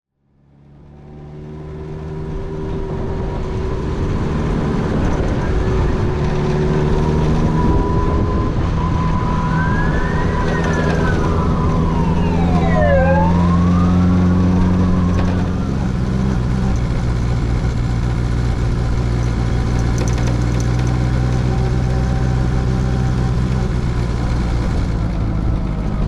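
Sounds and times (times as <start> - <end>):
motorcycle engine running: 0.4 - 26.0
siren wailing: 2.4 - 16.9.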